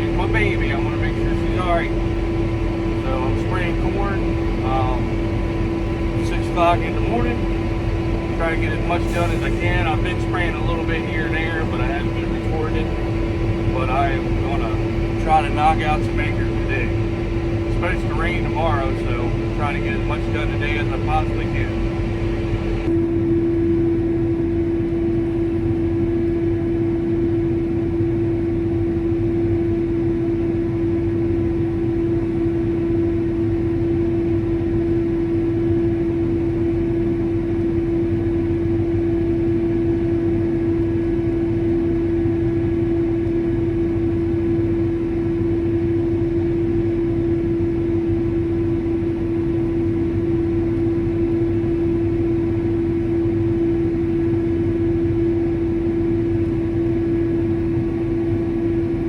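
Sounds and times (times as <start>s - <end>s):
crop sprayer engine humming: 0.0s - 23.0s.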